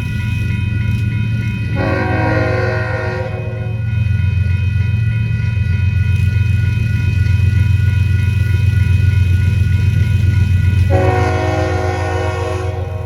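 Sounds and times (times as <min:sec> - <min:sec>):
approaching train: 0:00.0 - 0:13.0
crossing bells ringing: 0:00.0 - 0:13.0
locomotive air horn: 0:01.7 - 0:03.8, 0:10.9 - 0:13.0.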